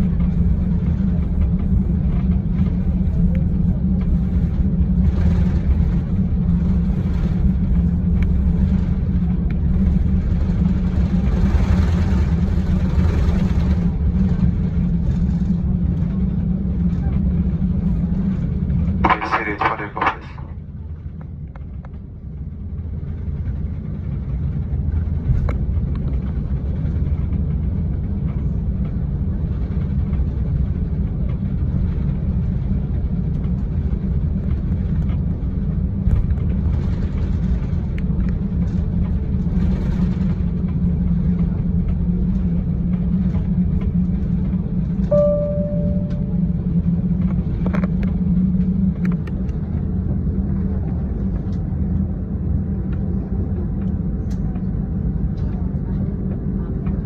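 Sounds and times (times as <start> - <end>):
airliner cabin engine rumble: 0.0 - 57.0
short ringing tone: 45.1 - 46.6.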